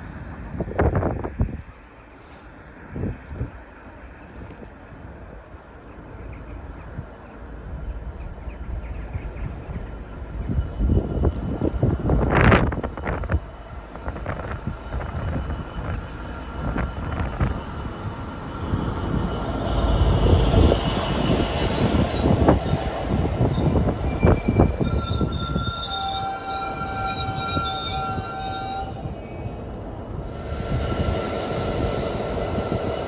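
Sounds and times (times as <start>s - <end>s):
train rumbling past: 6.0s - 33.0s
train wheels squealing: 18.3s - 33.0s.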